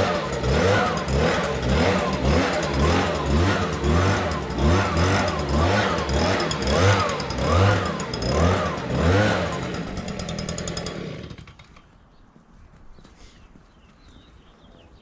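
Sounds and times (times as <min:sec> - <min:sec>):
small gasoline engine surging: 0:00.0 - 0:12.0.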